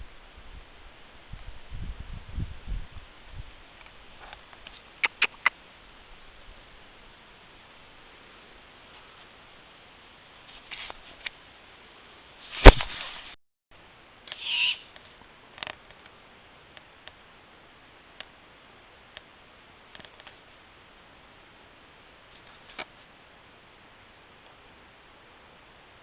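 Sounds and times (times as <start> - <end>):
barn owl screech: 14.3 - 14.9.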